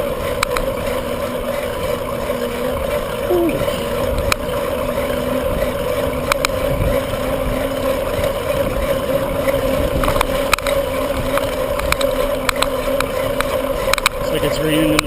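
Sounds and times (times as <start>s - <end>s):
bike clicks and rattles: 0.0s - 15.0s
bike hum: 0.0s - 15.0s.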